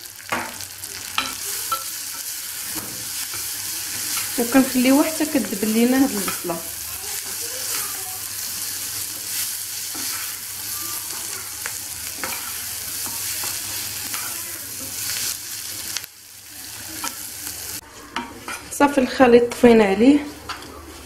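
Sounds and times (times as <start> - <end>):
onion sizzling in oil: 0.0 - 21.0
wooden spoon scraping saucepan: 12.2 - 15.0.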